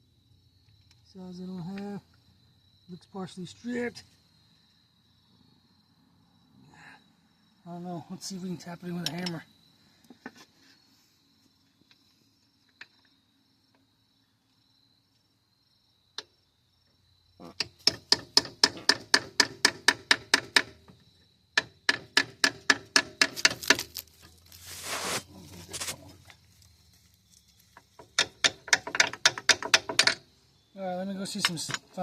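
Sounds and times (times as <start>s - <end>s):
rushing scrape: 24.6s - 26.0s.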